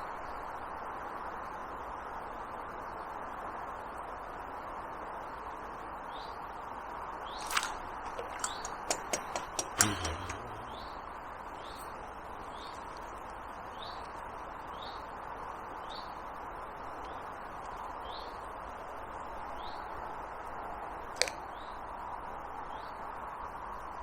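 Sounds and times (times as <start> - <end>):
sharp clicks: 7.4 - 10.9
loud knock: 8.7 - 10.8.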